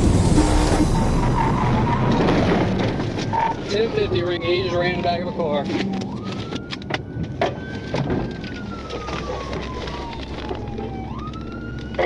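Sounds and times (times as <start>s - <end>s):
crackle: 0.0s - 4.3s, 5.5s - 12.0s
steady low rumble: 0.0s - 4.3s
police siren wailing: 0.0s - 12.0s.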